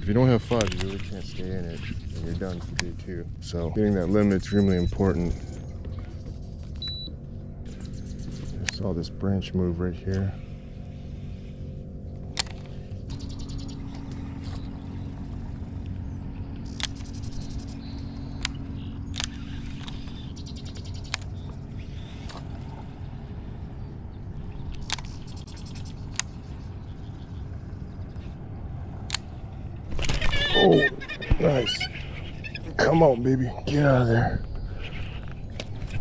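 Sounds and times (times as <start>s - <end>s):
low motor hum: 0.0s - 36.0s
sharp click: 0.4s - 1.9s, 12.3s - 12.7s, 18.3s - 21.6s, 24.7s - 25.5s.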